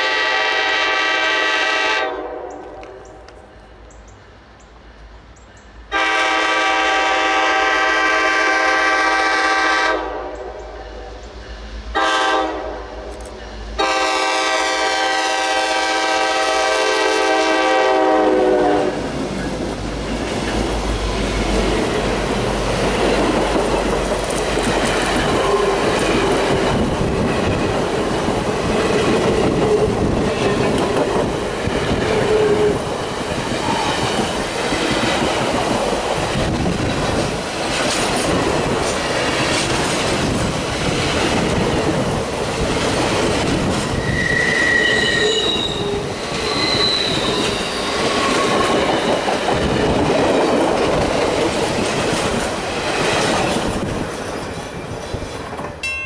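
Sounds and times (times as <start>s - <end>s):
train wheels clicking over rail joints: 19.1s - 44.2s, 46.2s - 55.9s
wheel squeal: 43.9s - 49.2s.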